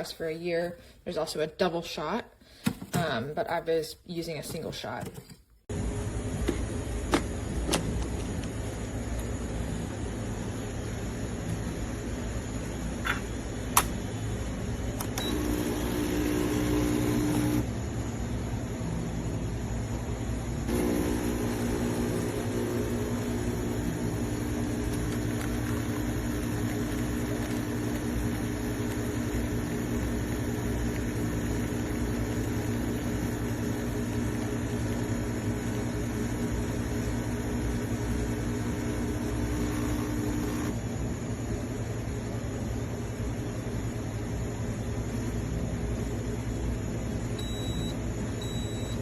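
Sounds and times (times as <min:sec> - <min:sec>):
espresso machine pump buzzing: 0:15.0 - 0:17.7, 0:20.6 - 0:40.8, 0:47.4 - 0:49.0.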